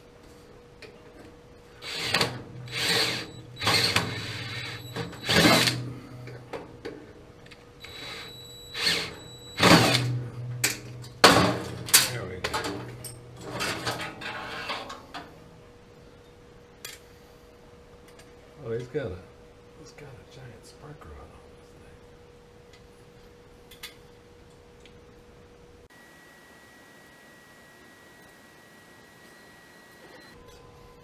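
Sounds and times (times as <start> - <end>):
power drill motor whining: 1.8 - 5.8, 7.8 - 10.1, 25.9 - 30.4.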